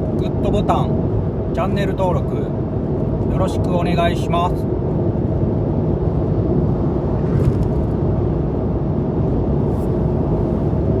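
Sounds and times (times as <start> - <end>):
low rumbling noise: 4.7 - 11.0.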